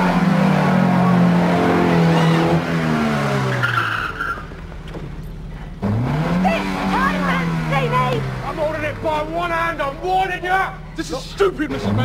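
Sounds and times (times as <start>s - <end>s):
car engine revving: 0.0s - 12.0s
short squeal: 2.0s - 2.6s.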